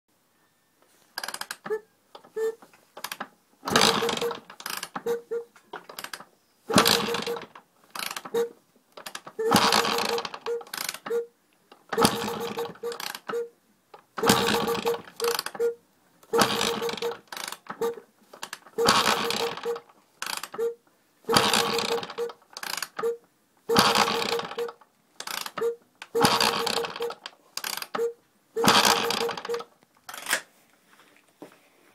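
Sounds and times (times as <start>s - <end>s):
short mechanical clicks: 1.2s - 30.5s
motorcycle gear clattering: 3.0s - 8.4s.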